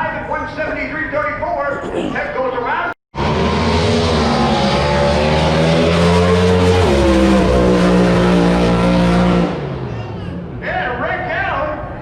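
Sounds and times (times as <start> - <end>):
racing boat engine droning: 3.2 - 10.6.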